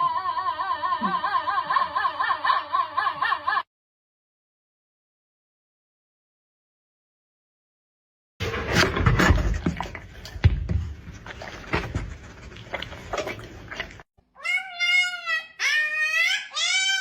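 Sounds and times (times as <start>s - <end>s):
thumps and knocks: 8.7s - 12.3s.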